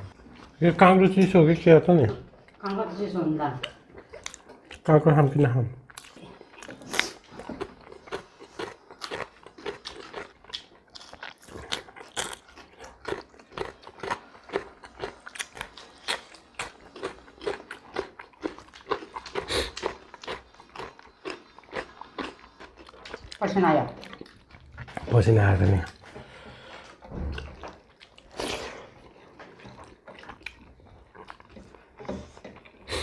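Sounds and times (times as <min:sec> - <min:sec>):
crunching cucumber: 0:05.8 - 0:26.0.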